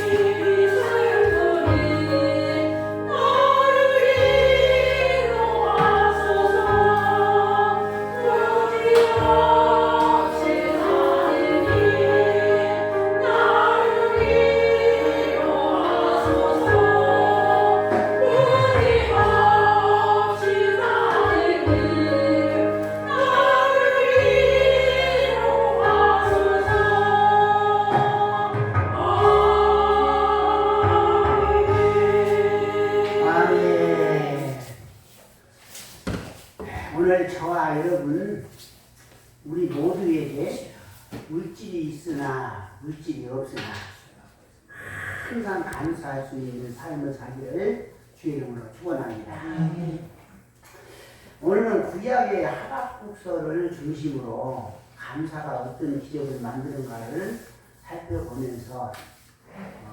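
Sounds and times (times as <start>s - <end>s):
church choir singing: 0.0s - 34.8s
low instrumental accompaniment: 0.0s - 34.8s.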